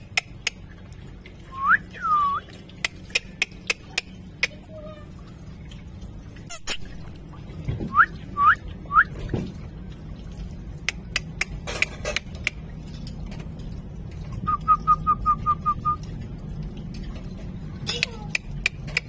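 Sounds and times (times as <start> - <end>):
parrot chirps: 6.5 - 6.9.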